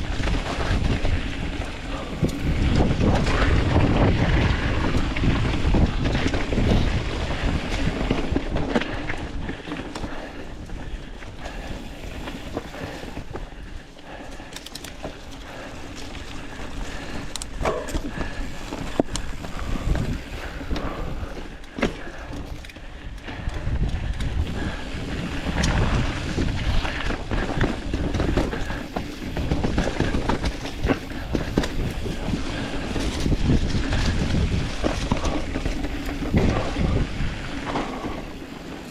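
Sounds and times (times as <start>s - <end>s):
wind noise on microphone: 0.0s - 14.2s, 15.0s - 38.9s
tyres rumbling over dirt: 0.0s - 38.9s
bike knocks and rattles: 14.4s - 38.9s.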